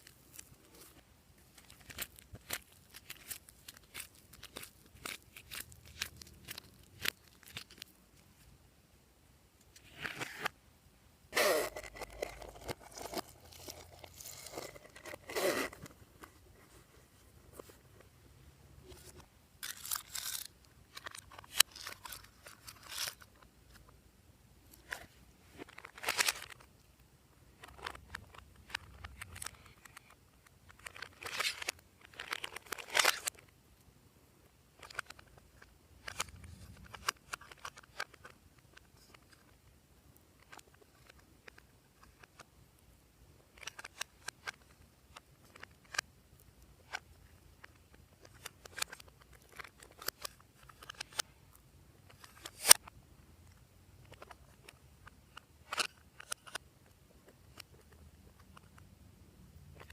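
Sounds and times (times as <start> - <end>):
slime crunching and tearing: 1.6 - 7.9.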